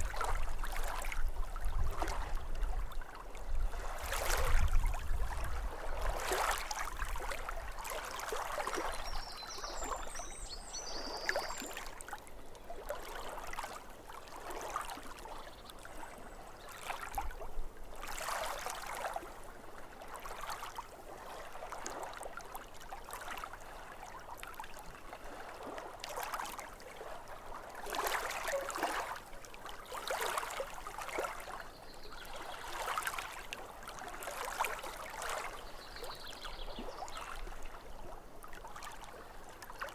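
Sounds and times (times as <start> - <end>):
water lapping at shore: 0.0 - 39.9
bird chirping: 8.8 - 11.8.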